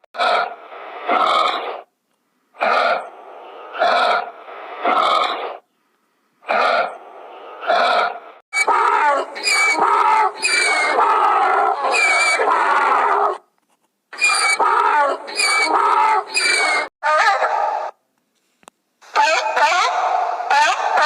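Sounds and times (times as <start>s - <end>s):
pig squealing: 0.2s - 1.9s, 2.6s - 3.1s, 3.7s - 5.6s, 6.5s - 7.0s, 7.6s - 13.4s, 14.2s - 17.4s.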